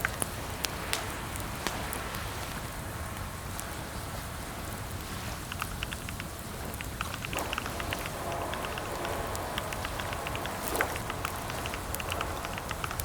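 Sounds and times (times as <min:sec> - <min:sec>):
keyboard typing clicks: 0:05.5 - 0:13.0.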